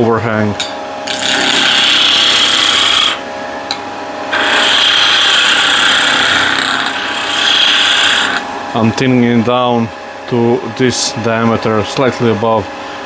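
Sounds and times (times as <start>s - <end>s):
lathe motor humming: 1.0s - 10.1s
wood lathe cutting wood: 1.1s - 3.2s, 4.3s - 8.4s.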